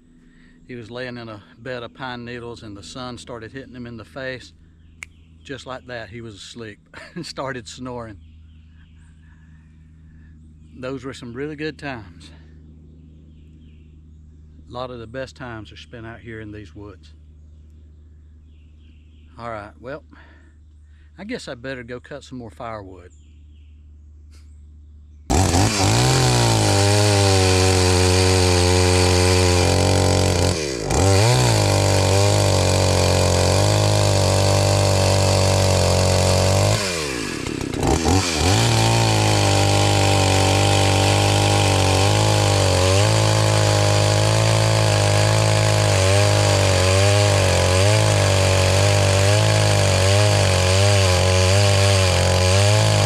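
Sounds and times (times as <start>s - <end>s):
chainsaw cutting wood: 25.3s - 53.0s.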